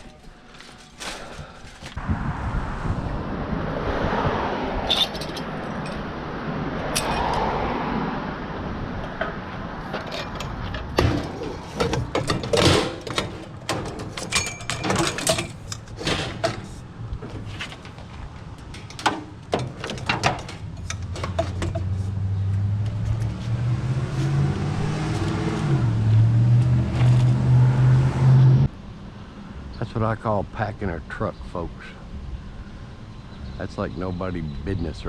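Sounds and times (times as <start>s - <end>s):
metal scrap clanking: 4.9s - 6.0s, 9.2s - 22.1s.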